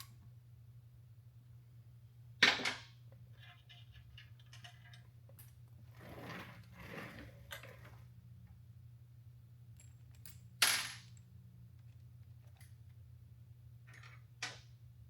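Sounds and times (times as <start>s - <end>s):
small metal parts clinking: 3.3s - 5.6s, 9.7s - 12.9s.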